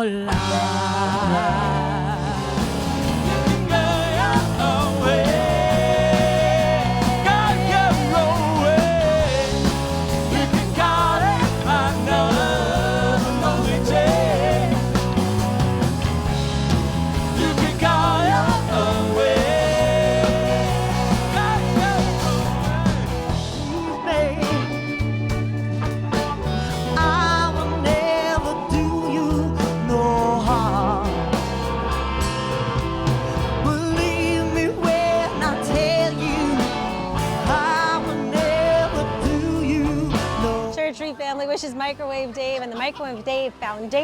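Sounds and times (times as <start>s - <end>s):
rock band playing: 0.3s - 42.0s.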